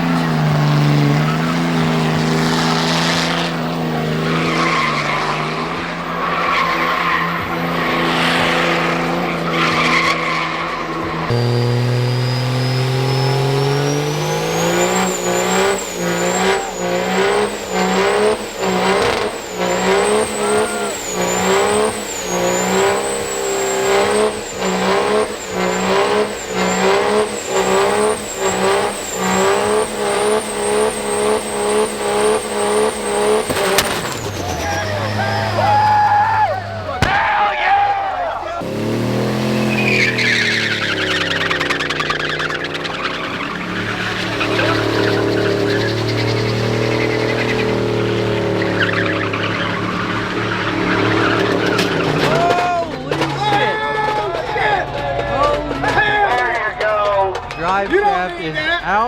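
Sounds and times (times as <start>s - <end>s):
diesel truck engine revving: 0.0s - 59.0s
tyres spinning and squealing: 0.0s - 59.0s
turbo whistle: 9.6s - 37.3s, 39.5s - 51.8s.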